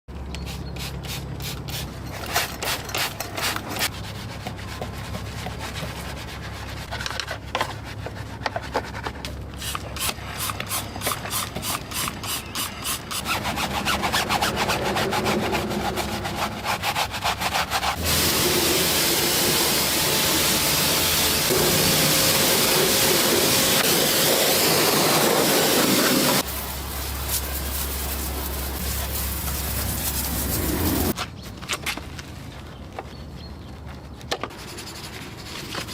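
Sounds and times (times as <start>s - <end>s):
scrubbing strokes: 11.2s - 31.2s
loud steady hiss of spray: 18.0s - 31.2s.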